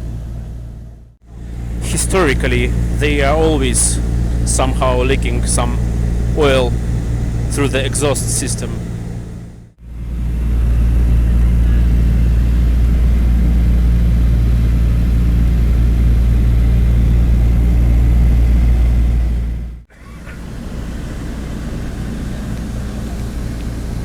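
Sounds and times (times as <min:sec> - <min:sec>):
propeller plane engines droning: 0:00.0 - 0:24.0.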